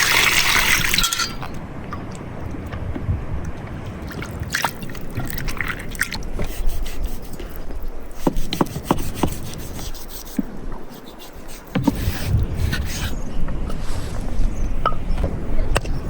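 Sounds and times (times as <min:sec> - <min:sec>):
liquid trickling: 0:00.0 - 0:02.8, 0:03.4 - 0:06.3.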